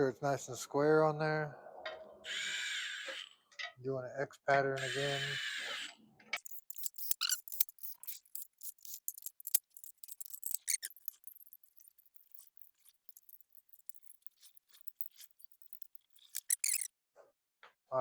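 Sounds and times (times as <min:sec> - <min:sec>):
hand tool metallic clicks: 0:06.4 - 0:16.9.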